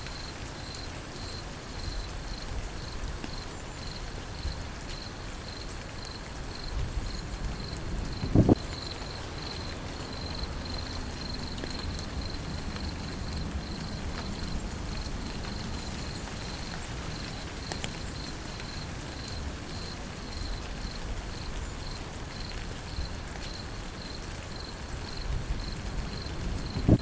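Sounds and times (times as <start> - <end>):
steady rain falling: 0.0 - 27.0
insect chirping: 0.1 - 17.4.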